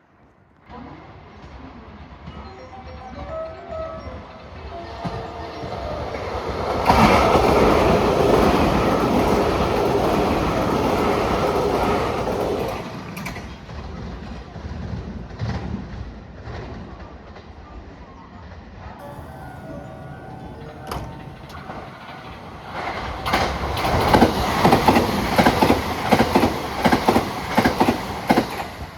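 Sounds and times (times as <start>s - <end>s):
train rumbling along track: 0.7s - 28.9s
rail clicks: 5.0s - 13.8s, 19.0s - 28.9s.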